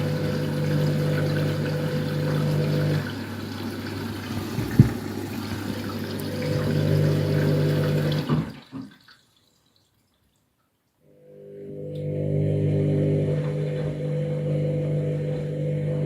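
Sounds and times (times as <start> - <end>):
washing machine motor hum: 0.0 - 8.7, 11.1 - 16.0
water sloshing: 0.0 - 10.4
drum knock: 4.6 - 5.1.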